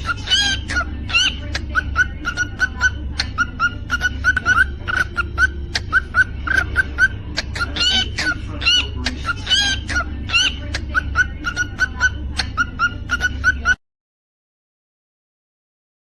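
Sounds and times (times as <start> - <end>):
cockatiel chirping: 0.0 - 13.8
cockatiel whistling: 0.0 - 13.8
steady low hum: 0.0 - 13.8.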